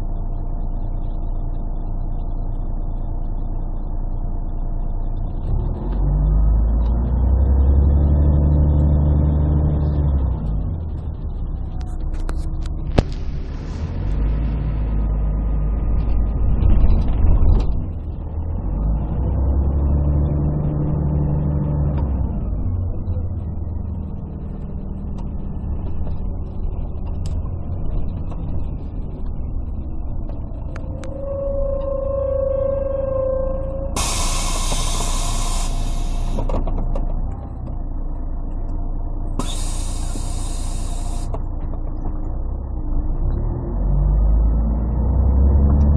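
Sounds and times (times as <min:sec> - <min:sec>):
bus diesel engine running: 0:00.0 - 0:44.3
short air hiss: 0:34.0 - 0:36.5, 0:39.4 - 0:41.4.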